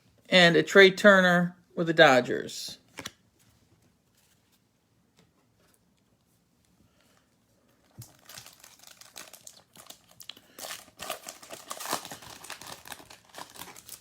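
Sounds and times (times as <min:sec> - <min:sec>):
foil wrapper crinkling: 0:07.8 - 0:14.0.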